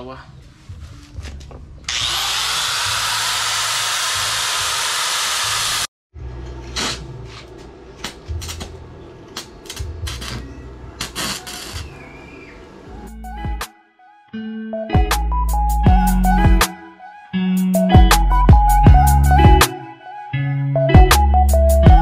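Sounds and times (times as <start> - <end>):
angle grinder cutting metal: 1.9 - 5.9.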